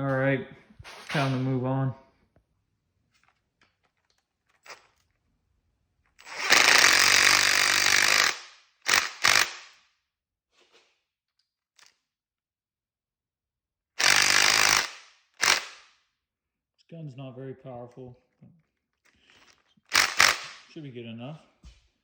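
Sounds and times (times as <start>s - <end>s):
impact wrench hammering: 6.2s - 9.8s, 14.0s - 15.9s, 19.9s - 20.7s.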